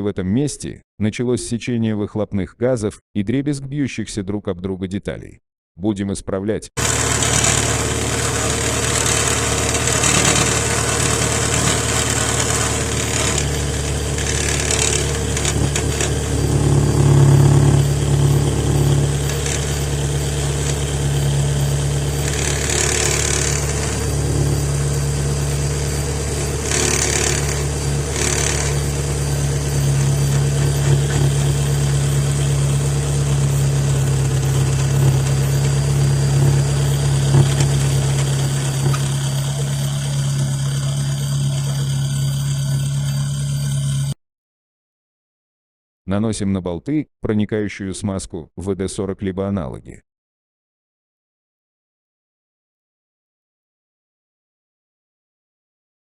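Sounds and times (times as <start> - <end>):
car engine idling: 6.8 - 44.1
exhaust gas hissing: 6.8 - 44.1.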